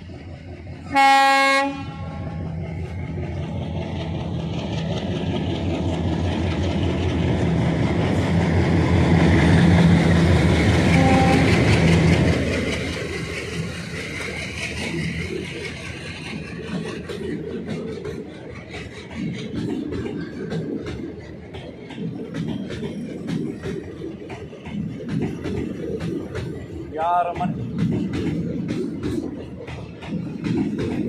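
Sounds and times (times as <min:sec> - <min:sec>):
diesel locomotives rumbling past: 0:00.0 - 0:31.0
train coaches clattering: 0:00.0 - 0:31.0
locomotive horn blasts: 0:00.9 - 0:02.2, 0:10.9 - 0:11.6.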